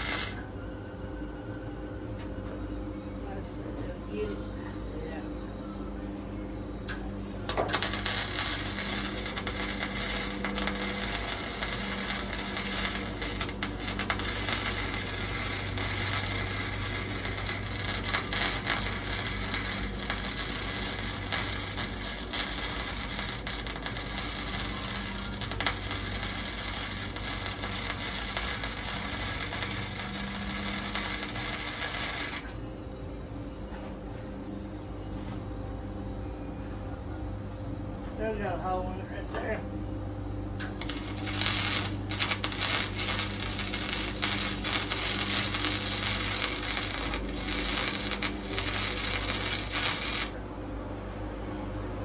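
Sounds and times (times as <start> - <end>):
arc welding crackling: 0.0 - 0.5, 6.9 - 32.6, 40.4 - 50.5
steady low hum: 0.0 - 52.0.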